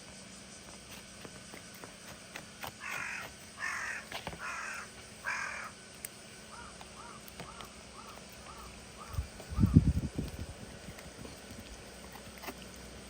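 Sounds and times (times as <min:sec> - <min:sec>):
crow cawing: 0:02.8 - 0:05.8, 0:06.5 - 0:09.9.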